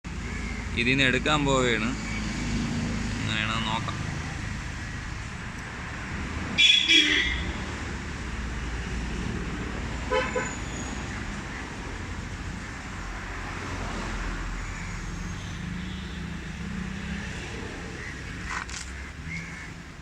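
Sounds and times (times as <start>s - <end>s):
motor vehicle noise: 0.0s - 20.0s.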